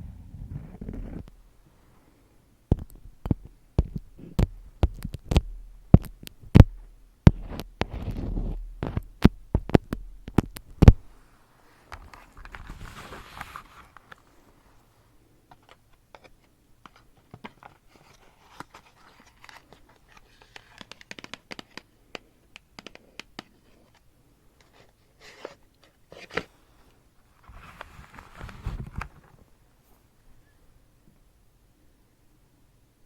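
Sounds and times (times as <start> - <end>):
crinkling and crackling: 11.8 - 14.9, 27.2 - 29.6.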